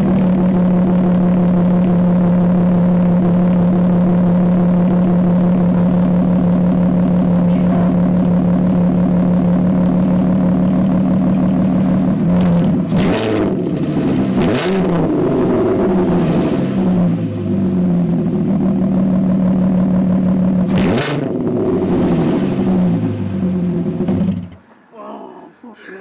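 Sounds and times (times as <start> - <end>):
car engine idling and revving: 0.0 - 24.7.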